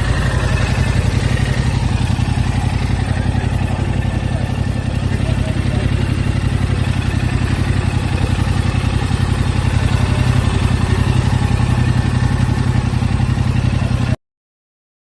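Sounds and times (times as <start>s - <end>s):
motorcycle engine idling: 0.0s - 14.2s.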